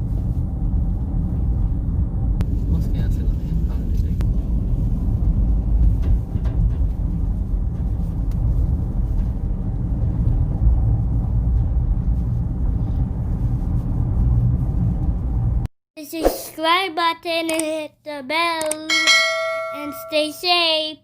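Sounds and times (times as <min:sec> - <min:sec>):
car engine and tyre rumble: 0:00.0 - 0:15.7.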